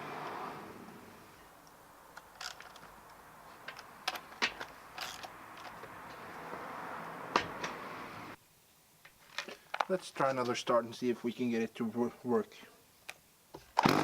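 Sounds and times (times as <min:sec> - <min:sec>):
faint steady hiss: 0:00.0 - 0:13.8
clicks and knocks of parts handled: 0:01.6 - 0:06.4, 0:09.0 - 0:10.6.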